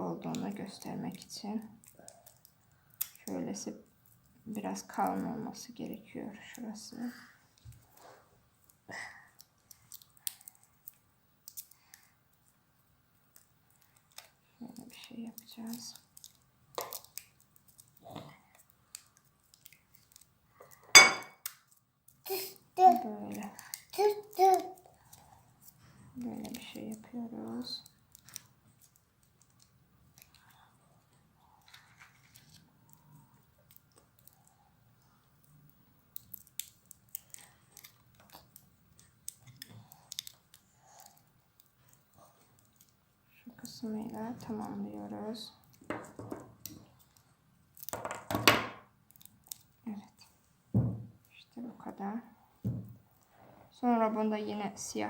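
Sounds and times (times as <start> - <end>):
soft rustles and scrapes: 30.2 - 34.5.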